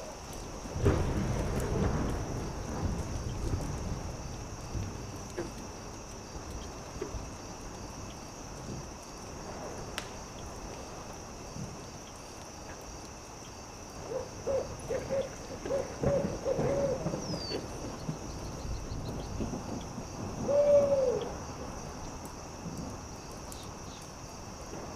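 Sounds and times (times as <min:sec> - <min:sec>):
campfire crackling and popping: 0:00.0 - 0:20.5, 0:21.2 - 0:24.9
owl hooting: 0:14.1 - 0:17.6, 0:20.5 - 0:21.3.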